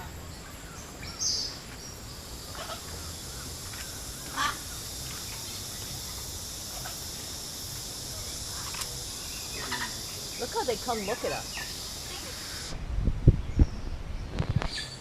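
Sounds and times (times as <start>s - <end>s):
jungle insects droning: 0.0s - 12.8s.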